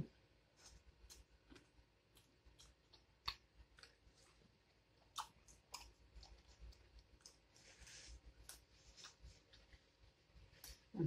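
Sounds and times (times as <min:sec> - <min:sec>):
chewing pizza: 0:00.5 - 0:10.9.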